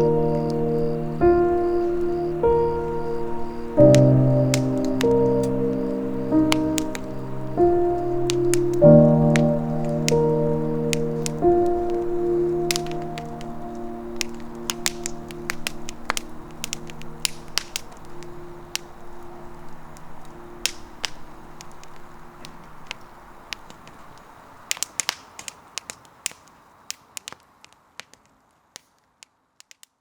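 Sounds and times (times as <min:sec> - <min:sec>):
soft background music: 0:00.0 - 0:23.1
campfire crackling and popping: 0:00.0 - 0:30.0.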